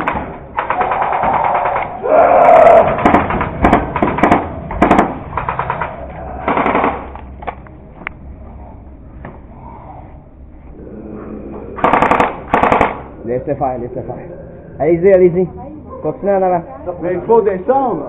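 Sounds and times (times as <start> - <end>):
airsoft guns firing bursts: 0.0 - 1.9, 2.8 - 5.9, 6.5 - 7.1, 11.8 - 13.0
person crying out: 1.0 - 3.0.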